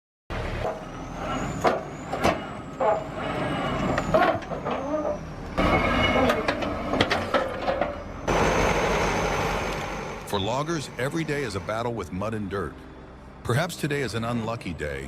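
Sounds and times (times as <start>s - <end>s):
heavy diesel machinery engine: 0.3s - 14.6s
sharp metallic knocks and clanks: 5.6s - 8.4s.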